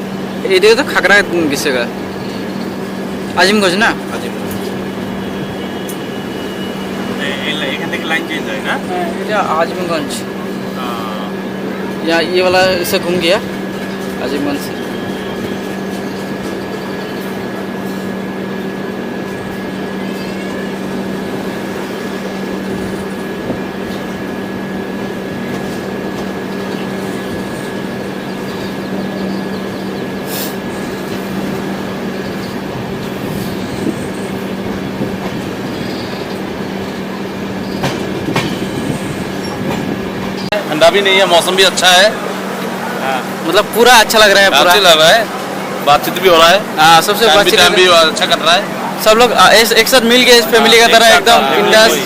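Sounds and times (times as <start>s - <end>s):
train coach on rails: 0.0s - 52.0s.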